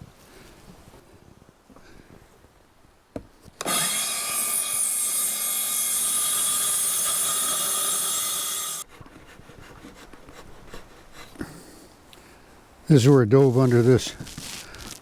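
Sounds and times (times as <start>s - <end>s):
circular saw cutting wood: 3.6s - 8.9s.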